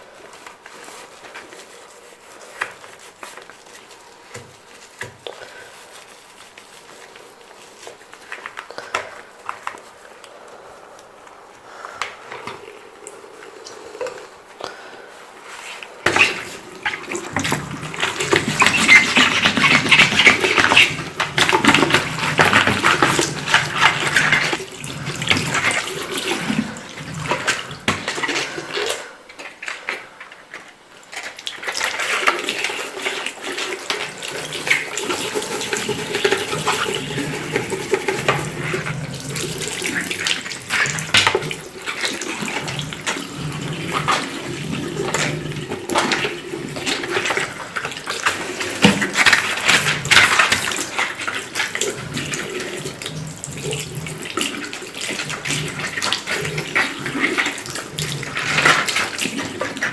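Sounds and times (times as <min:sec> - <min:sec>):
tap water running into sink: 0:16.1 - 0:28.9, 0:31.4 - 0:59.9.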